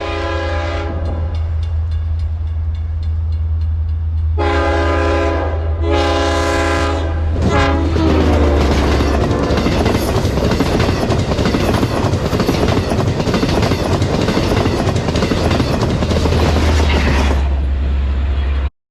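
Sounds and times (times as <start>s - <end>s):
train horn blasts: 0.0s - 1.6s, 4.3s - 10.0s
diesel engine drone: 16.2s - 18.7s.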